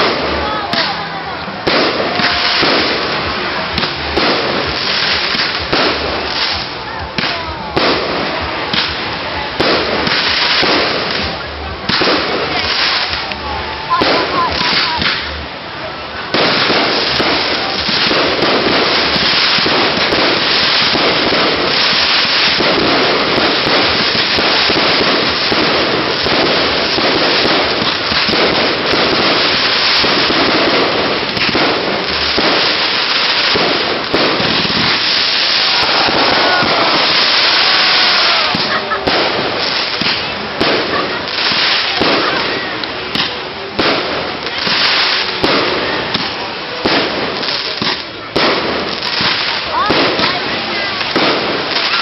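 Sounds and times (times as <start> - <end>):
campfire crackling: 0.0 - 52.0.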